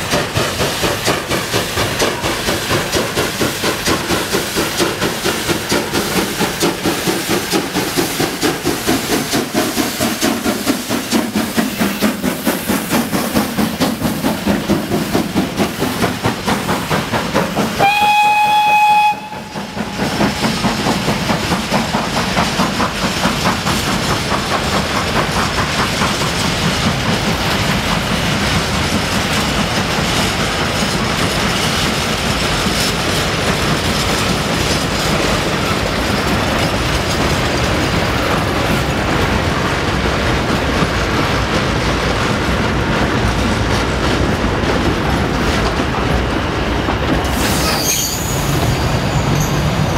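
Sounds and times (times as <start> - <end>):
train wheels clacking on rail joints: 0.0 - 49.9
train horn blast: 17.8 - 19.6.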